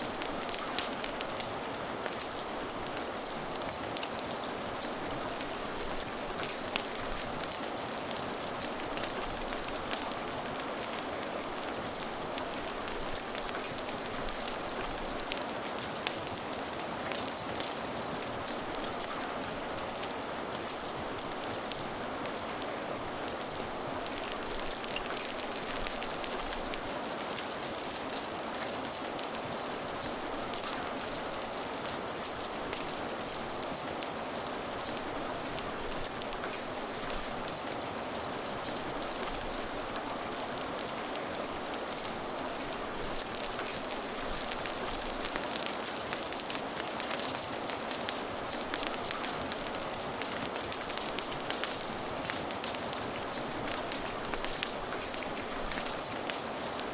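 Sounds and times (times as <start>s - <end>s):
fire crackling: 0.0s - 56.9s
rain falling: 0.0s - 56.9s.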